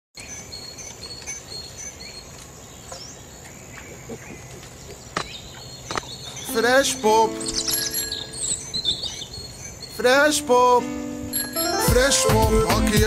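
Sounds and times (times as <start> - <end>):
birds chirping: 0.2 - 13.0
steady background hiss: 0.3 - 12.3
thin high tone: 6.5 - 9.0, 9.9 - 13.0.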